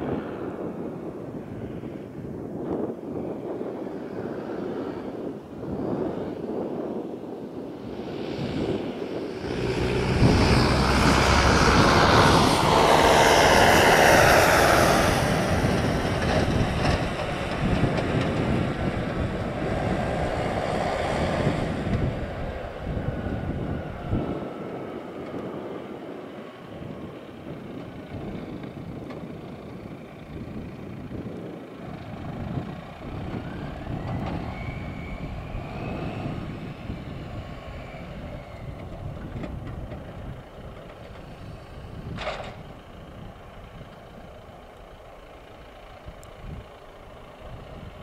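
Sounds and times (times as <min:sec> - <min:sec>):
car engine under hard throttle: 0:00.0 - 0:48.0.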